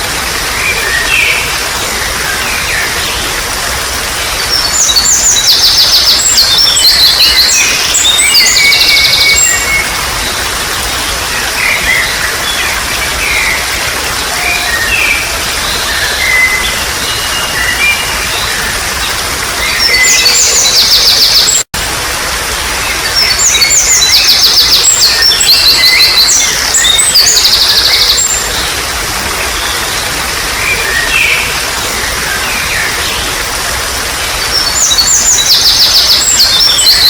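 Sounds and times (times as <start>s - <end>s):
water trickling: 0.0s - 37.0s
birds singing: 0.4s - 21.7s, 22.8s - 37.0s.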